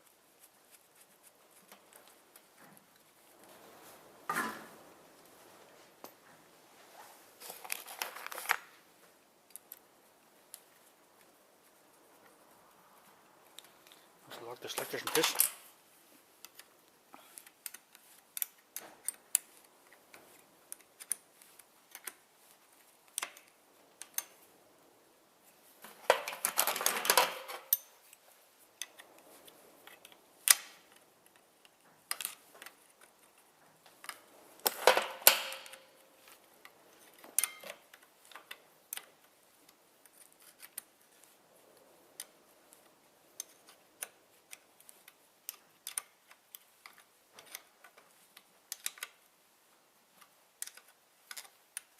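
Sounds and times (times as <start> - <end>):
metal parts clattering: 14.7 - 15.6, 25.9 - 27.9, 34.6 - 36.0
metal tools and parts clinking: 14.7 - 15.7, 25.8 - 28.2, 34.0 - 38.6.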